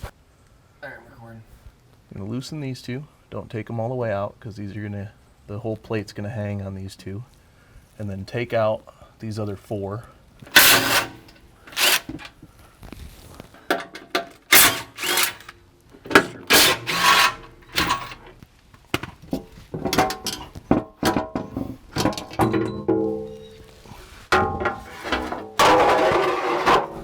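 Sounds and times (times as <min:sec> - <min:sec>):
bolts clicking and rattling: 0:10.4 - 0:12.4, 0:13.6 - 0:23.7
cordless power tool bursts: 0:10.5 - 0:12.3, 0:14.3 - 0:18.2.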